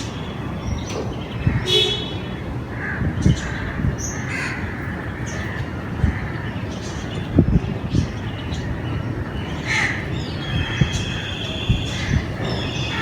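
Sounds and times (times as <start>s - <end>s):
crows cawing: 2.7s - 6.6s, 9.6s - 13.0s.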